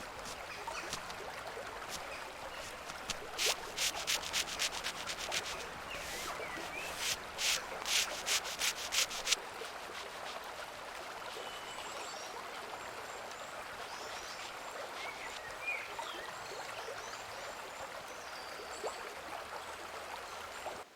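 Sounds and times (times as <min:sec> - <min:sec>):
sandpaper rubbing on wood: 0:01.9 - 0:10.4.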